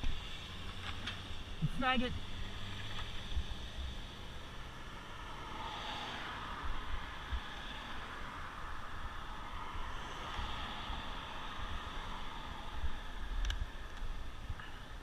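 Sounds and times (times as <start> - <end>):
low wind rumble gusts: 0.0 - 15.0
wind and road noise: 0.0 - 15.0.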